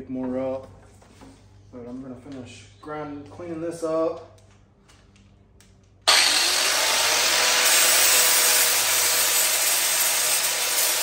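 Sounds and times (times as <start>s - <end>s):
angle grinder grinding steel: 6.1s - 11.0s.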